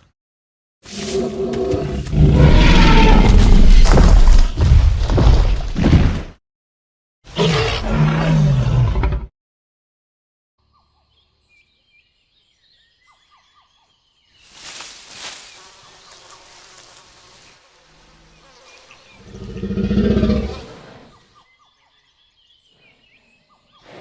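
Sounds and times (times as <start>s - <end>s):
faint jungle chirps: 10.6s - 24.0s.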